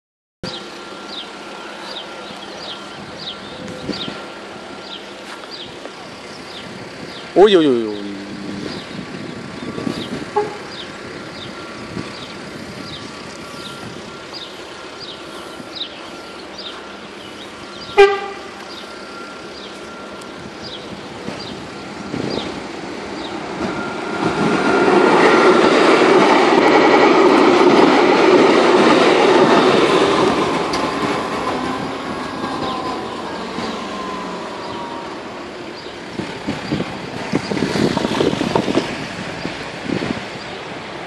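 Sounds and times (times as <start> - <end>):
train passing close by: 0.4 - 41.0
train horn blast: 10.3 - 10.8, 17.9 - 18.8.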